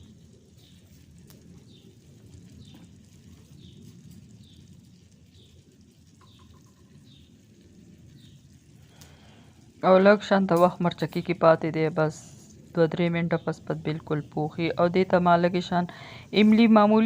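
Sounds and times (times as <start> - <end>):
low steady rumble: 0.0 - 17.0
bird chirping faintly: 1.6 - 7.4.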